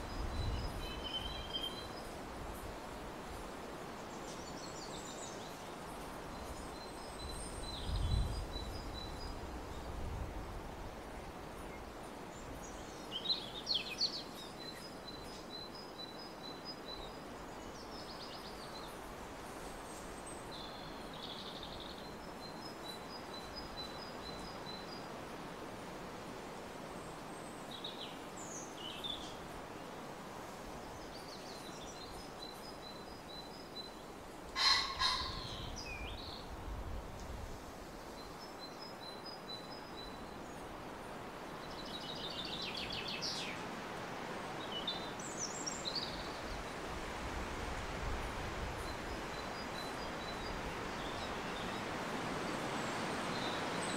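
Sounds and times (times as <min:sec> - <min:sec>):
outdoor hiss: 0:35.7 - 0:53.9.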